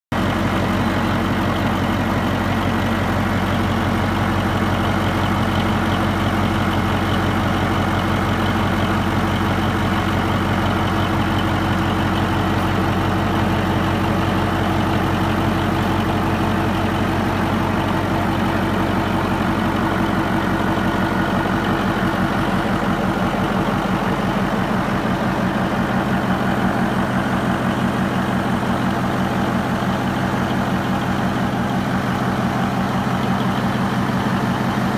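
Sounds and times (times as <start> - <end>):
marine diesel engine running: 0.1 - 34.9.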